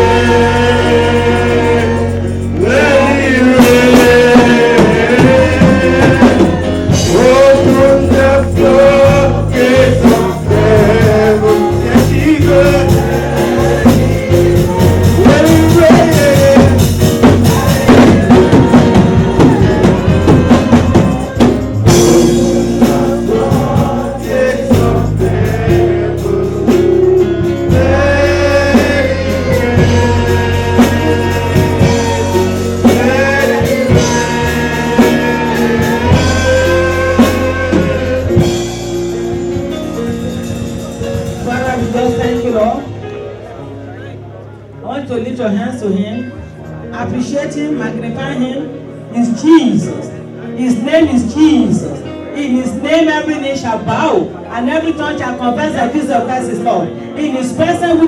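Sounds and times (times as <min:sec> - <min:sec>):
voices singing gospel: 0:00.0 - 0:44.6
band with beat and bass: 0:00.0 - 0:45.3.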